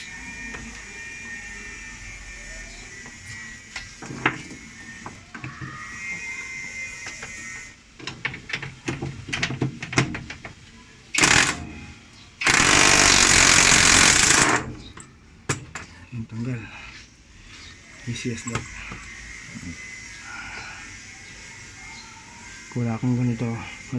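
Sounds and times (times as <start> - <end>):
impact wrench hammering: 11.2 - 14.9.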